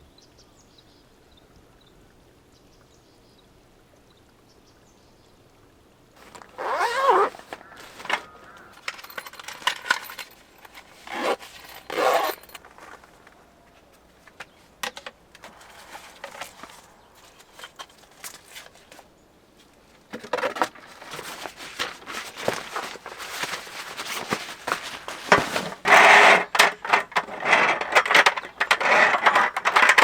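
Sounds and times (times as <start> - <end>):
objects clinking and knocking: 6.2 - 13.0, 20.2 - 30.0
rustling: 6.2 - 30.0.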